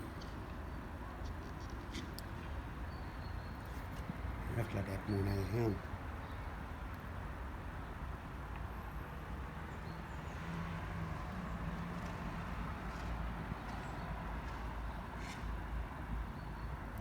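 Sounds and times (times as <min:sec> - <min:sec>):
distant road traffic rumble: 0:00.0 - 0:17.0.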